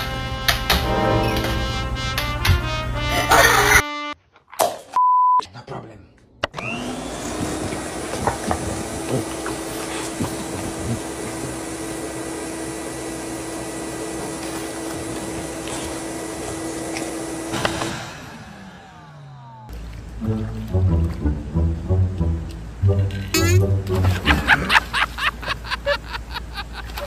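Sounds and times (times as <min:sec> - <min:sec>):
vacuum cleaner motor running: 0:06.5 - 0:19.6
motor winding down: 0:06.5 - 0:19.7.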